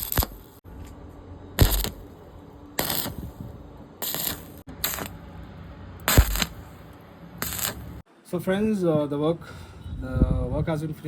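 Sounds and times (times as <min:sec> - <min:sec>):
short tack weld bursts: 0:00.0 - 0:00.5, 0:02.8 - 0:03.4, 0:04.0 - 0:05.2, 0:06.1 - 0:06.8, 0:07.4 - 0:08.0.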